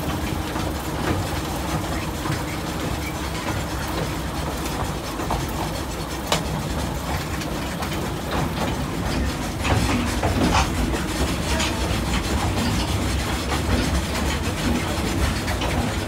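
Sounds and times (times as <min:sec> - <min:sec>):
train carriage rumble: 0:00.0 - 0:16.0
train clicks and knocks: 0:00.0 - 0:16.0.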